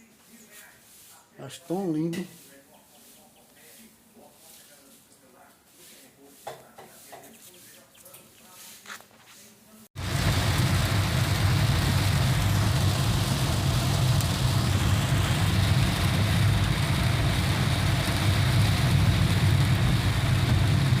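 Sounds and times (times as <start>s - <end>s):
deep rumble: 10.0s - 21.0s
heavy rain falling: 10.0s - 21.0s.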